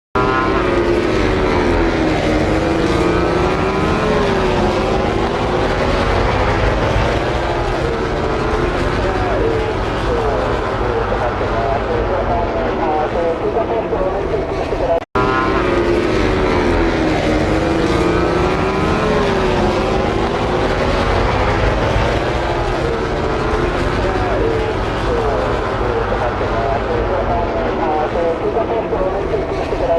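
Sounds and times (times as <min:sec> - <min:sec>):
racing motorcycle engine revving: 0:00.2 - 0:29.9.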